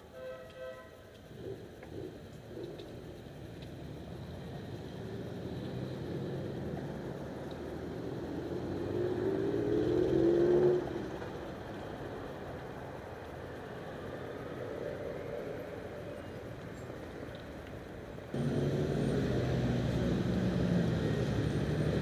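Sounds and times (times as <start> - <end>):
background traffic: 0.0 - 22.0
motorcycle accelerating past: 8.3 - 11.0, 18.4 - 22.0.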